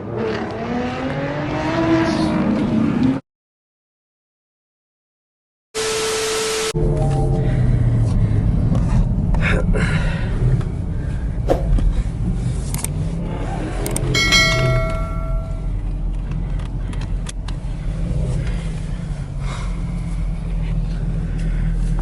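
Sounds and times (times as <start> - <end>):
car engines rumbling: 0.0 - 3.2, 6.8 - 22.0
steady high tone: 6.7 - 8.0, 14.2 - 15.8.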